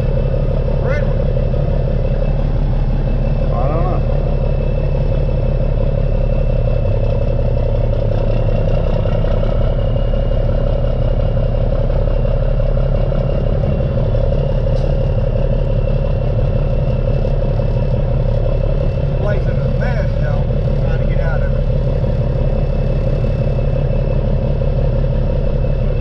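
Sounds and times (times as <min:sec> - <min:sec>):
diesel engine droning: 0:00.0 - 0:26.0
road noise: 0:00.0 - 0:26.0.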